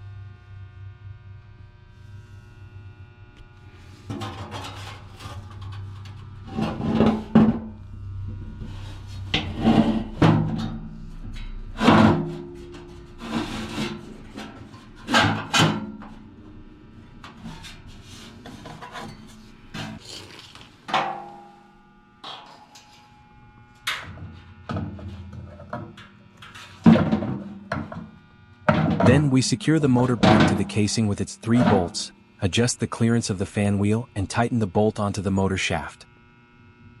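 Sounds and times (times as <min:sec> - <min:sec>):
scraping and rubbing of metal parts: 0:04.0 - 0:07.5, 0:08.6 - 0:10.8, 0:11.4 - 0:15.8, 0:17.4 - 0:20.7.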